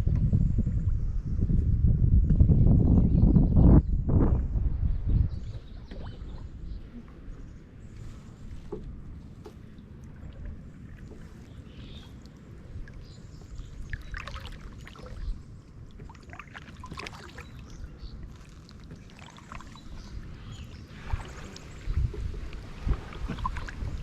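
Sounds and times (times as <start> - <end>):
steady low rumble: 0.0 - 24.0
paddle water splashing: 5.6 - 24.0.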